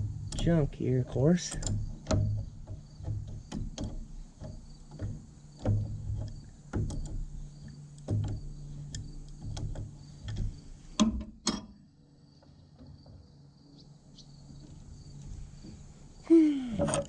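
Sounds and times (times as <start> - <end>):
high insect drone: 0.0 - 11.0, 11.9 - 17.0
knocks and clatter on roller: 0.0 - 11.7.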